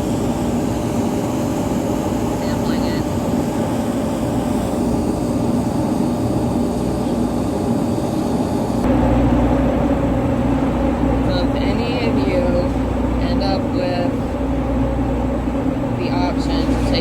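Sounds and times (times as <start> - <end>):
diesel truck idling: 8.9 - 17.0.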